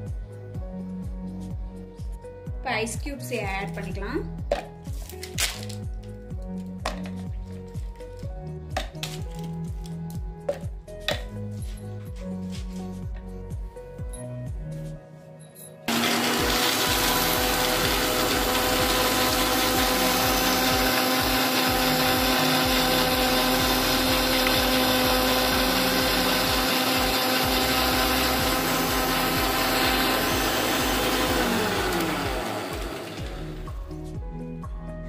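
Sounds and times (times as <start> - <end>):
mixer-grinder motor running: 15.9 - 33.8.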